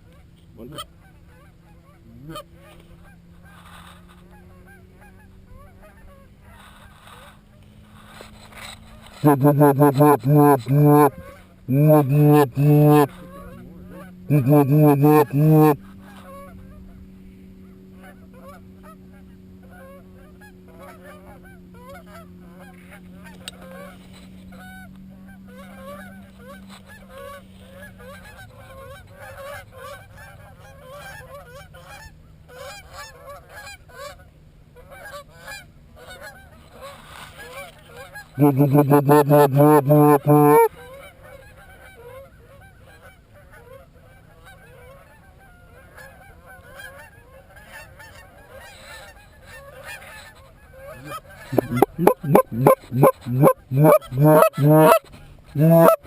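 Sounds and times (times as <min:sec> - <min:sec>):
goose call honks and clucks: 0:00.1 - 0:16.8, 0:34.9 - 0:40.9, 0:45.4 - 0:56.0
distant geese honking: 0:00.6 - 0:17.0, 0:38.0 - 0:40.7, 0:50.9 - 0:56.0.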